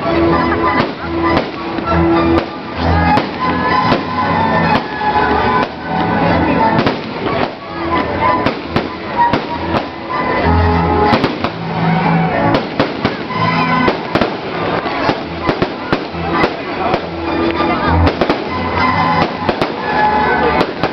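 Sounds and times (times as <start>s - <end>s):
fireworks bangs and crackling: 0.0s - 20.9s.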